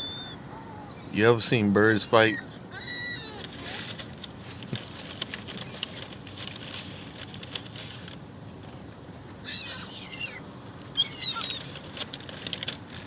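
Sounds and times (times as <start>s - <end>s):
high wavering bird calls: 0.0s - 1.4s, 9.4s - 10.4s, 11.0s - 11.7s.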